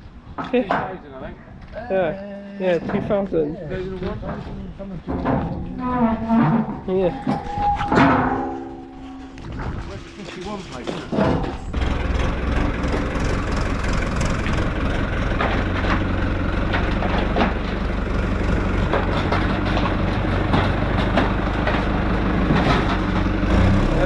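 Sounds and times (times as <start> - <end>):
clicks and knocks: 5.1 - 12.3
tractor diesel engine idling: 11.6 - 24.0.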